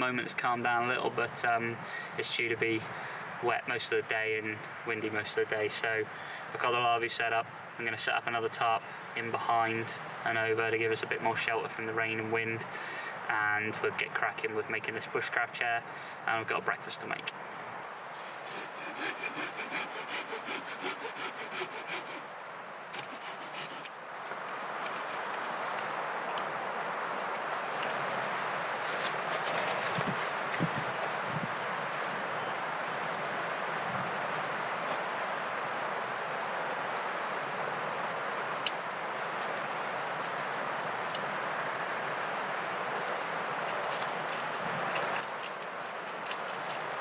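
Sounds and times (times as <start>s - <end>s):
wind and rain in woodland: 0.0s - 47.0s
hand saw cutting wood: 18.2s - 22.3s, 23.0s - 24.0s.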